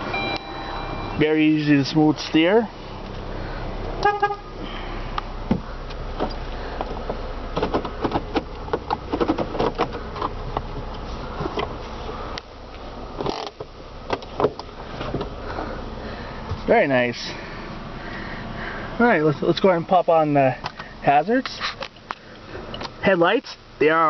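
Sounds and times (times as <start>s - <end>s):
car engine idling: 0.0s - 24.0s
clicks of interior car controls: 5.5s - 11.7s.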